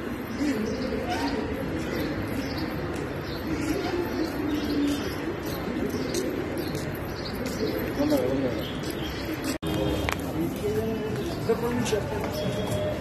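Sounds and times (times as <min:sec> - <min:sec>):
birds cooing: 0:00.0 - 0:09.6
steady background noise: 0:00.0 - 0:13.0.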